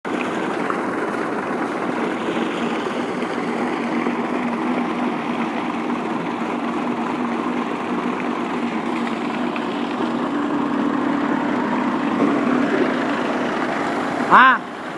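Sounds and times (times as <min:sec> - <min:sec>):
tractor diesel engine running: 0:00.0 - 0:14.9
water pump humming: 0:00.0 - 0:14.9.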